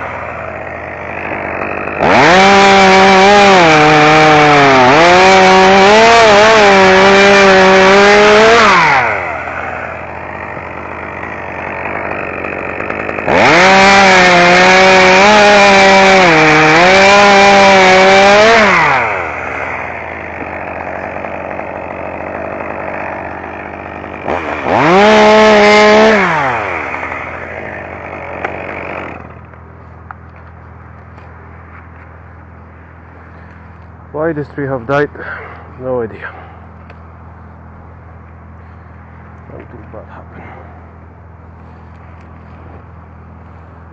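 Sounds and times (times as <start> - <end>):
chainsaw idling: 0.0 - 31.8, 32.4 - 43.9
chainsaw cutting wood: 0.0 - 32.1.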